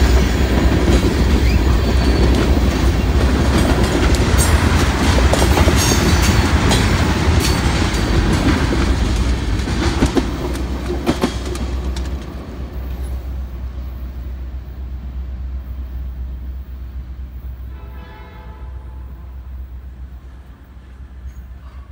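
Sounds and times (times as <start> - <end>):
train wheels clattering on rails: 0.0 - 14.4
distant train horn: 17.3 - 21.9.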